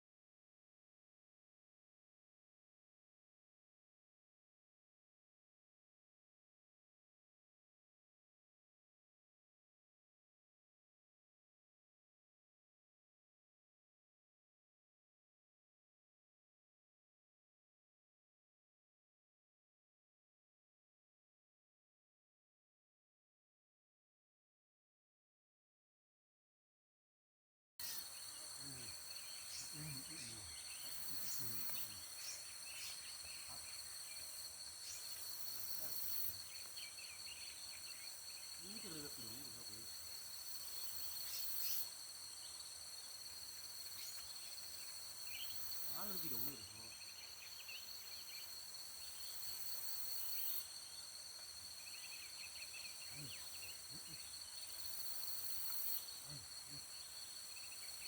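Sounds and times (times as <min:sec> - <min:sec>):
insects droning: 0:27.8 - 0:58.0.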